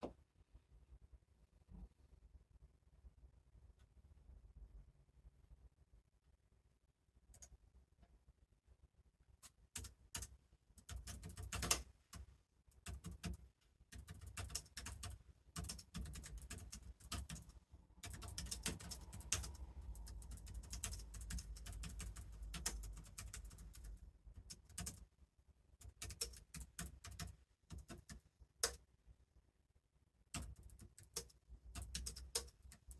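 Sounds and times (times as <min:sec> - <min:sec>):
typing on computer keyboard: 0:09.7 - 0:25.1, 0:25.8 - 0:28.8, 0:30.3 - 0:32.9.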